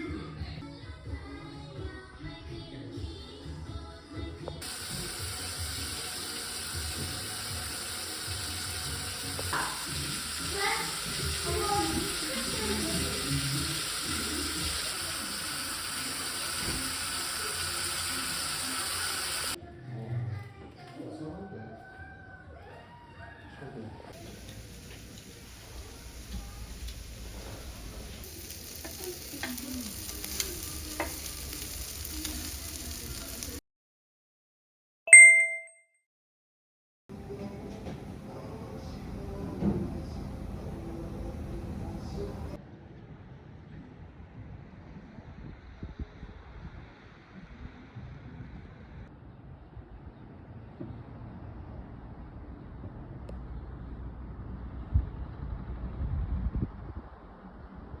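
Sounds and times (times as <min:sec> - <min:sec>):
faint music: 0:00.0 - 0:33.6, 0:37.1 - 0:58.0
meat sizzling: 0:04.6 - 0:19.6, 0:24.2 - 0:33.6
water running from a tap: 0:04.6 - 0:19.6, 0:24.2 - 0:33.6.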